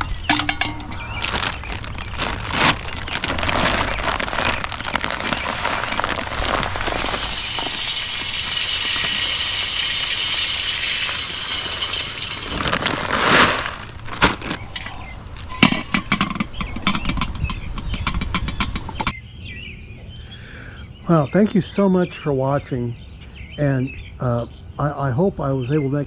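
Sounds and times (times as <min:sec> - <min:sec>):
seeds clicking and rattling: 0:00.0 - 0:15.5
birdseed pouring hiss: 0:05.5 - 0:14.1.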